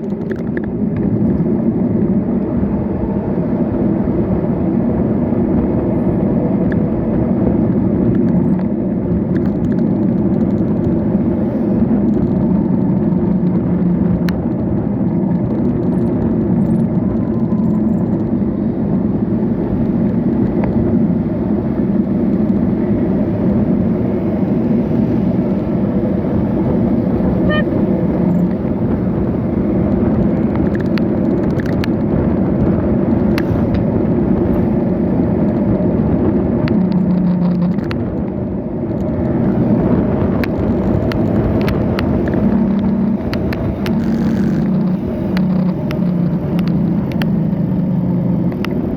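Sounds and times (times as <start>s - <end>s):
passing cars: 0.0s - 48.9s
wind on microphone: 0.0s - 48.9s
faint ticks: 40.4s - 47.3s.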